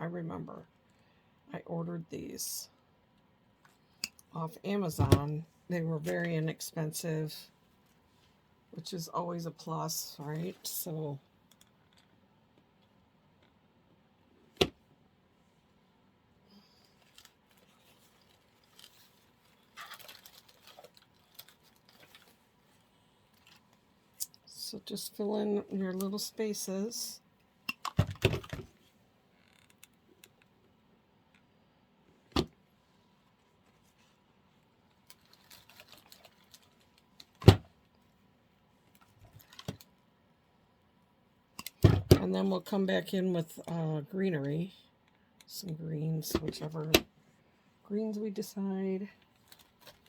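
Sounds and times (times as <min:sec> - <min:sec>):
plastic flowers rustling: 0:16.9 - 0:23.8, 0:35.0 - 0:37.4, 0:49.3 - 0:50.0.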